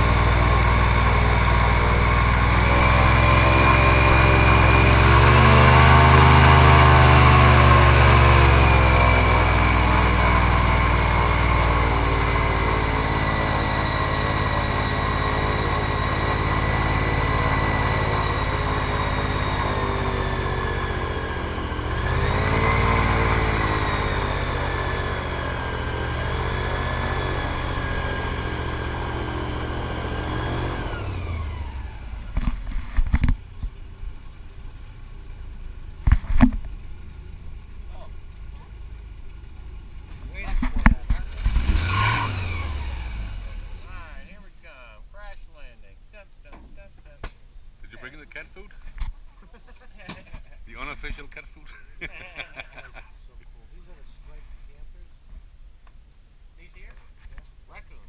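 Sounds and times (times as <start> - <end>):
airboat engine and propeller: 0.0 - 32.6.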